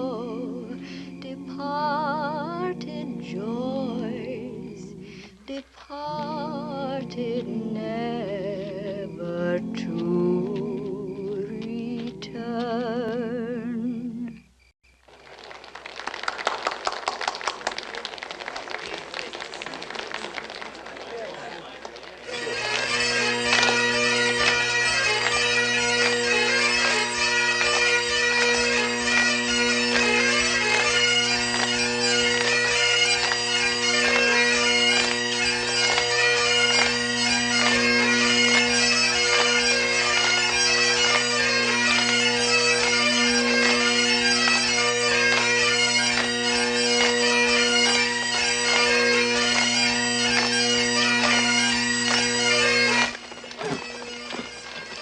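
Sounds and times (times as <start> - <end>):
bagpipes playing a tune: 0.0 - 12.8, 22.2 - 55.0.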